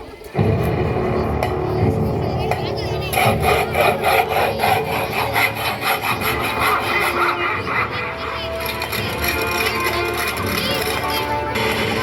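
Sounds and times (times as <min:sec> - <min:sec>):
saw cutting through wood: 0:03.0 - 0:12.0.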